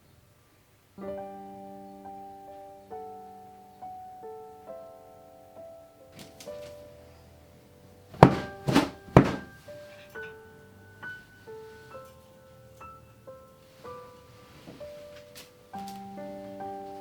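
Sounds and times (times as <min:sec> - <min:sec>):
soft piano music: 0:00.0 - 0:17.0
sharp knocks: 0:08.2 - 0:09.6.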